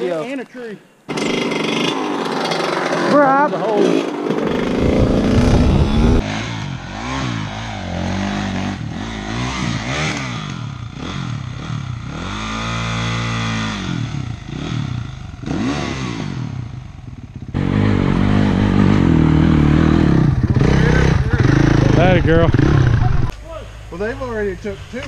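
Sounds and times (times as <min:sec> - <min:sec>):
dirt bike engine revving: 0:01.1 - 0:25.0
louder steady engine: 0:04.3 - 0:23.3.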